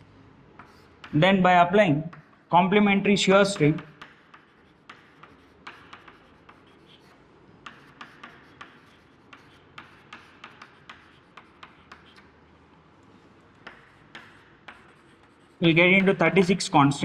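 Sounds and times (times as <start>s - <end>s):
pen scratching on paper: 0.6s - 1.2s, 3.5s - 12.4s, 13.6s - 16.7s.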